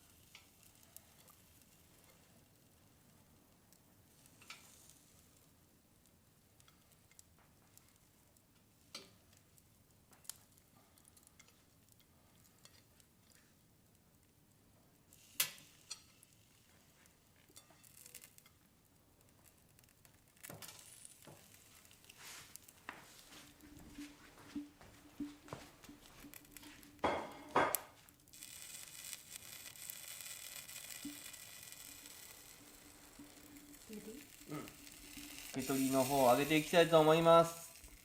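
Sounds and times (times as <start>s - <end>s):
food sizzling over embers: 0.0s - 38.0s
wood fire crackling: 0.0s - 38.0s.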